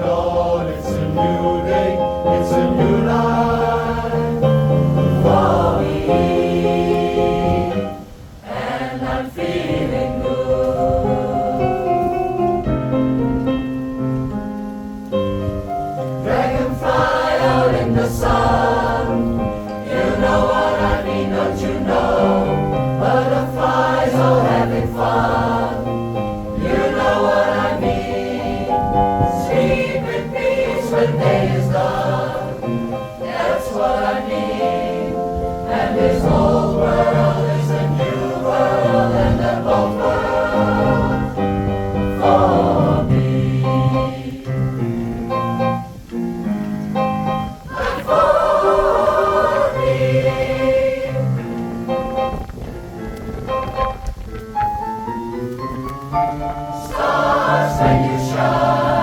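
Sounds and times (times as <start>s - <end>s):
choir singing in harmony: 0.0s - 12.8s, 15.6s - 45.6s, 47.4s - 52.4s, 56.2s - 59.0s.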